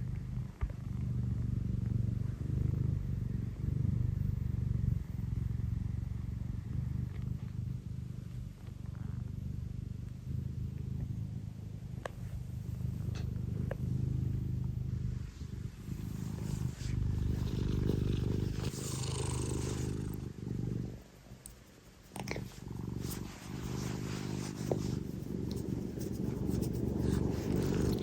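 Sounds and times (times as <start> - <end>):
cat purring loudly: 0.0 - 28.0
faint clicks: 21.2 - 22.4.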